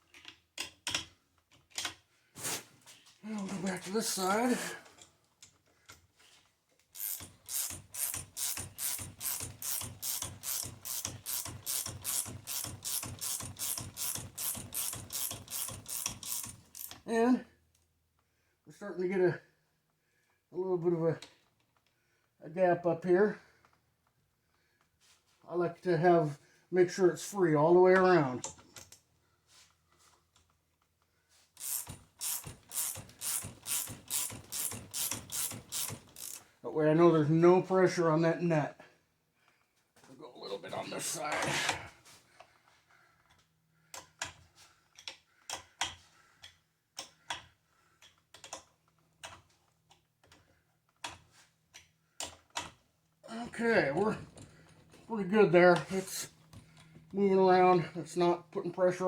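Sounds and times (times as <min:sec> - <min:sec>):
ratcheting wrench strokes: 0:07.0 - 0:17.1, 0:31.6 - 0:36.5.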